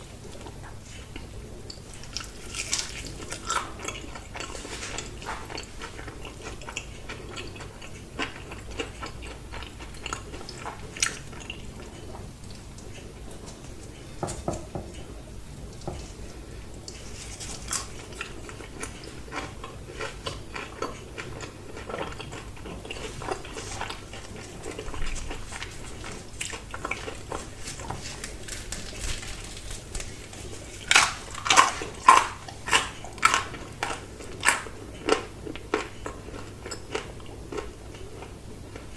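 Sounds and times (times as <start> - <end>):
soft chewing: 0.1 - 38.9
crisp crunches: 23.0 - 34.6.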